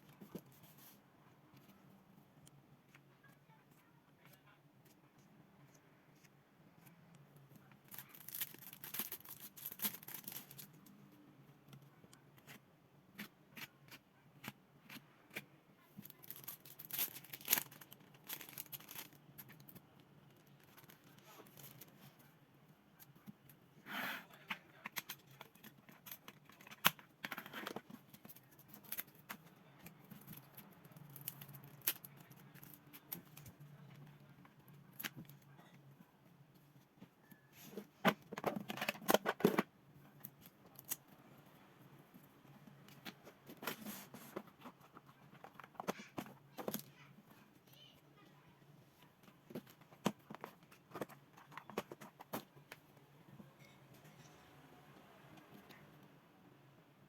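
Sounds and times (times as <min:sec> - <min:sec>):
paper and plastic packaging rustling: 0:07.6 - 0:11.1, 0:15.9 - 0:22.3, 0:37.6 - 0:41.0, 0:42.8 - 0:47.4, 0:49.0 - 0:52.9.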